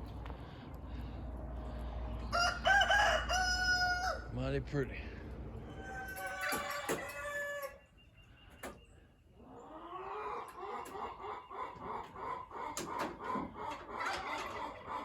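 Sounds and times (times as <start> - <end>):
rooster crowing: 2.2 - 4.3, 5.6 - 7.9
chickens clucking: 5.2 - 15.0.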